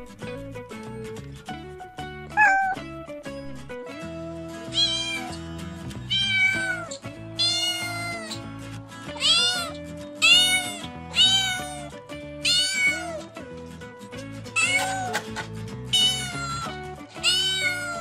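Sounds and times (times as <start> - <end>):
background music: 0.0 - 18.0
cat meowing: 2.3 - 3.0, 4.7 - 5.4, 6.1 - 8.5, 9.1 - 13.3, 14.6 - 15.3, 15.9 - 18.0.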